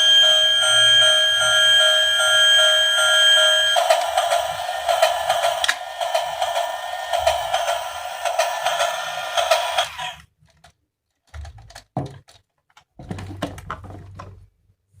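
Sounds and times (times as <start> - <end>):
toy train motor whirring: 2.7 - 10.3
plastic toy clicks and knocks: 3.8 - 14.3.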